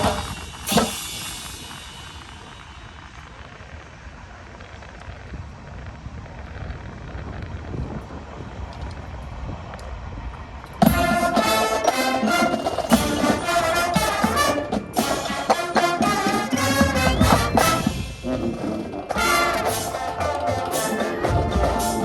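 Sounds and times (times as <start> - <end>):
wind rumbling on microphone: 0.0 - 19.7
brass section playing loudly: 10.8 - 22.0.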